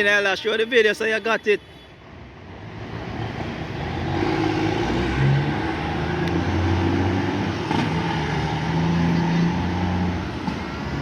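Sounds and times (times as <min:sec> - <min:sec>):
road noise: 0:00.0 - 0:11.0
truck diesel engine passing: 0:02.6 - 0:11.0.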